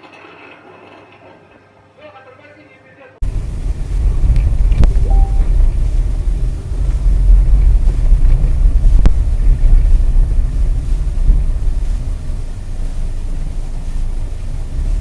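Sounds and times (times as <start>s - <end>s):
moving car rumble: 3.2s - 15.0s
wind buffeting: 3.2s - 15.0s.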